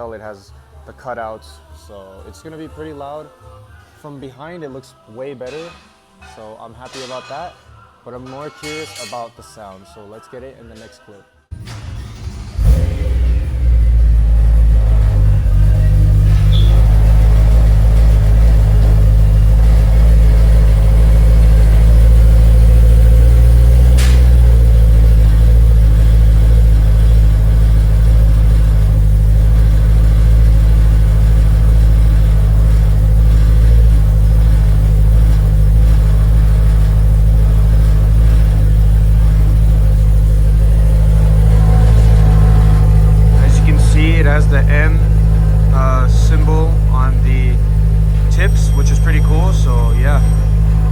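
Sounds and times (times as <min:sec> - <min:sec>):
car engine idling: 0:11.5 - 0:50.9.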